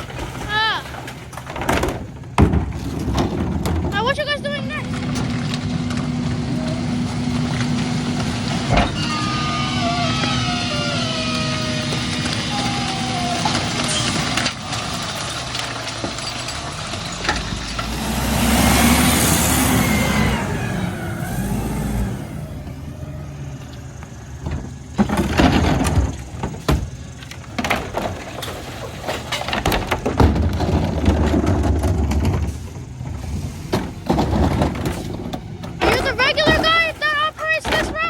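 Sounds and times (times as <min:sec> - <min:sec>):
packer clanks and knocks: 0:00.0 - 0:04.2, 0:24.4 - 0:38.0
garbage truck engine revving: 0:00.0 - 0:38.0
hydraulic hissing rush: 0:17.8 - 0:24.4.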